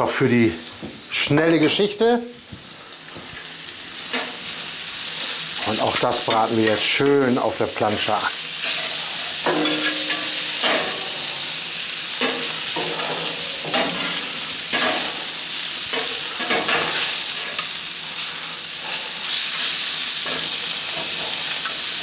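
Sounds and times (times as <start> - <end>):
food sizzling on hot plate: 0.0 - 22.0
spatula scraping hot plate: 8.6 - 11.1.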